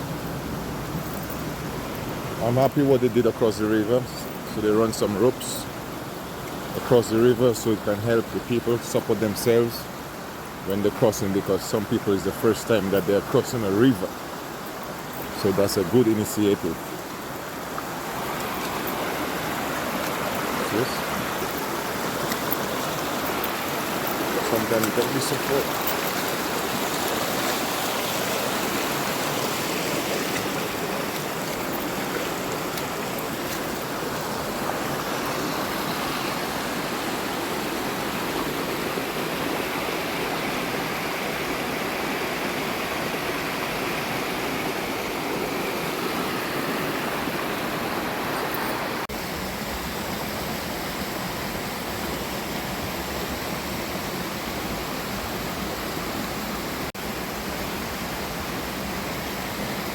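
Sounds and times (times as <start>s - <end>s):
river rushing: 0.0s - 59.9s.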